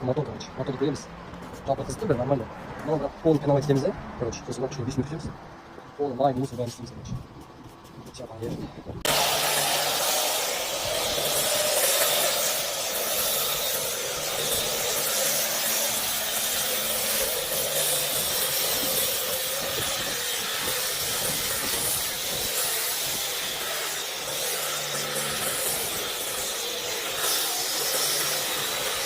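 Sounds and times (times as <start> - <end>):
spray washer hissing: 9.1 - 29.0.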